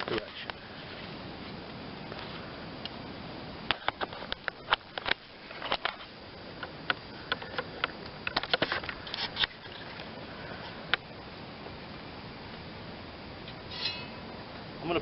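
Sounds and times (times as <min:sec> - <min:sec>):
mower blade clinking on steel: 0:13.7 - 0:14.2.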